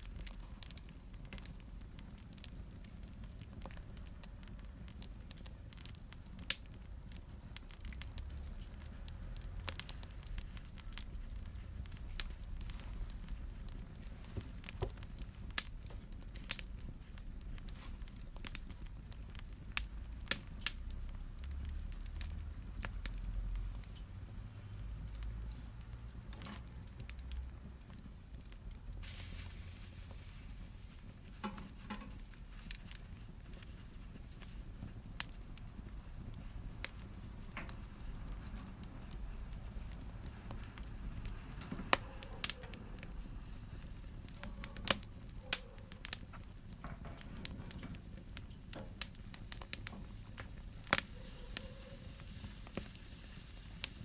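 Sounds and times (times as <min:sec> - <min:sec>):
wood fire crackling: 0:00.0 - 0:54.0
brief hiss: 0:29.0 - 0:30.8.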